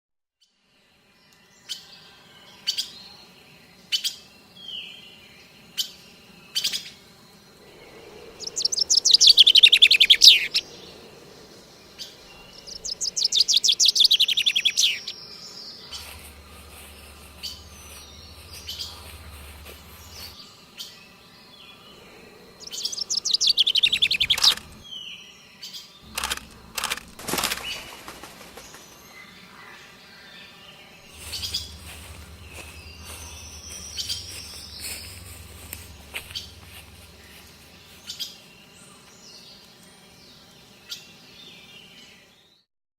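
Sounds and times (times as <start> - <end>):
songbird chirping: 1.0 - 42.6
rustling: 15.9 - 20.4, 26.0 - 29.1, 31.1 - 38.2
sharp clicks: 23.7 - 24.8, 26.1 - 28.2
bird trills falling in pitch: 26.1 - 29.0.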